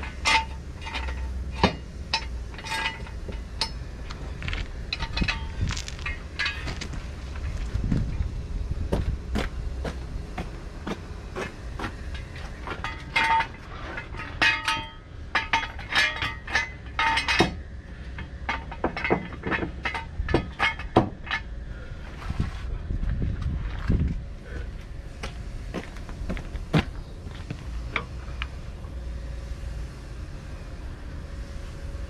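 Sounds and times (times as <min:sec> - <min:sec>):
metal tools clinking: 0:00.0 - 0:03.8, 0:04.9 - 0:06.9, 0:12.1 - 0:17.6
steady low rumble: 0:00.0 - 0:32.0.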